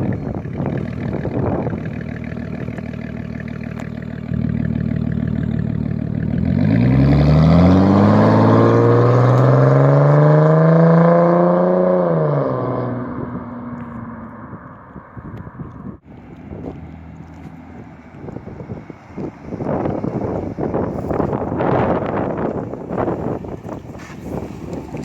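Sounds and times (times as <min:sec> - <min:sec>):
engine accelerating hard: 0:00.0 - 0:15.0
car exhaust rumble: 0:00.0 - 0:25.0.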